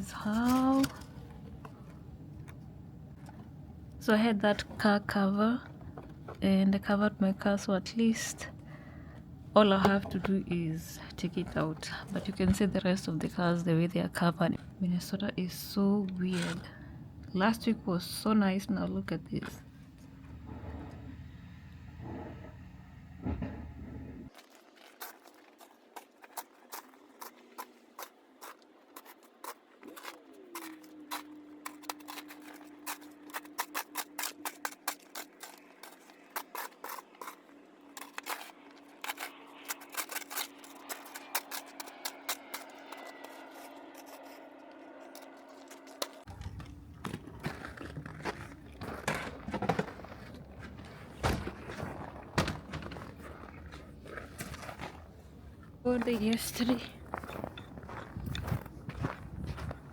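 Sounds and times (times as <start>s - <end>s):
steady low hum: 0.0s - 24.3s, 27.0s - 59.9s
rapid scraping and crunching: 24.3s - 59.9s.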